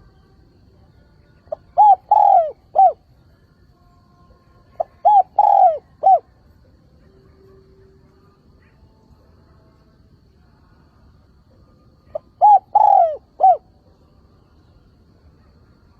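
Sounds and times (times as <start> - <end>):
dove cooing: 1.5 - 3.0, 4.8 - 6.3, 12.1 - 13.7.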